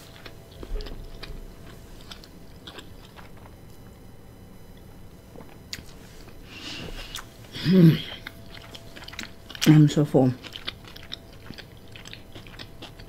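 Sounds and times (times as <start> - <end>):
person chewing food: 0.0 - 4.0, 4.7 - 13.0.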